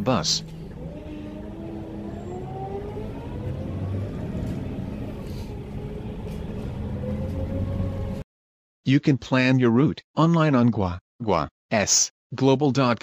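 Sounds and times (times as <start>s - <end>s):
bus engine rumble: 0.0s - 8.2s
rising engine whine: 0.0s - 8.2s.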